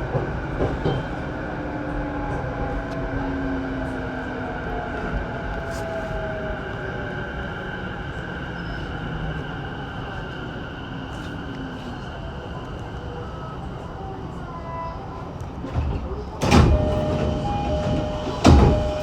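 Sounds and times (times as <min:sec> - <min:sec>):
wheels rumbling on rail: 0:00.0 - 0:19.0
train motor whine: 0:16.4 - 0:19.0.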